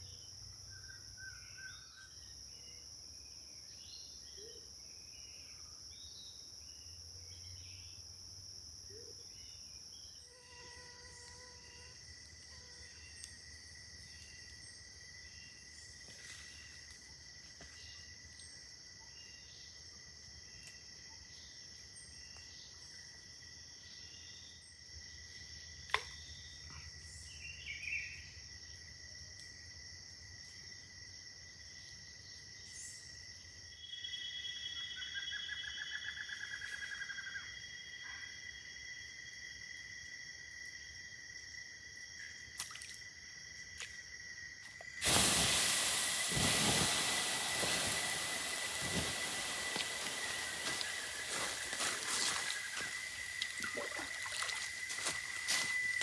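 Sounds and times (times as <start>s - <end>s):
forest insects droning: 0.0s - 56.0s
rapid pulsed insect trill: 0.0s - 56.0s
loud rushing hiss: 45.0s - 56.0s.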